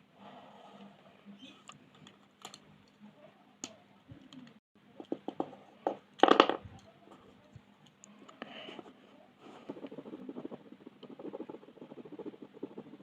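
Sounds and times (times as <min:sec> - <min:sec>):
pencils clicking and tapping: 0:04.4 - 0:06.9.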